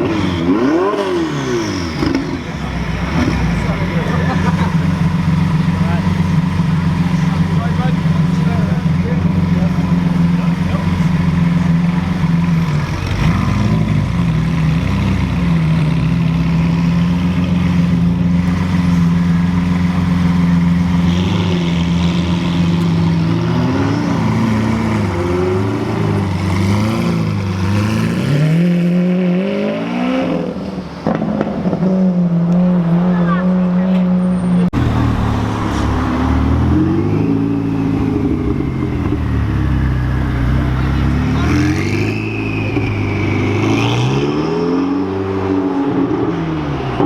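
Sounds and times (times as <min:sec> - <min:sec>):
car engine idling and revving: 0:00.0 - 0:47.0.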